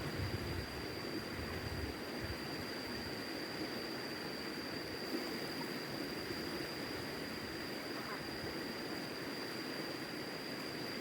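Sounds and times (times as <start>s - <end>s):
wind rumble on microphone: 0.0s - 2.7s.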